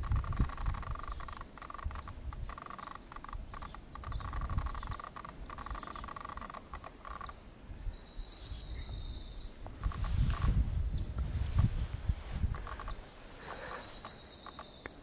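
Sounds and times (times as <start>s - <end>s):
songbird chip notes: 12.6s - 15.0s.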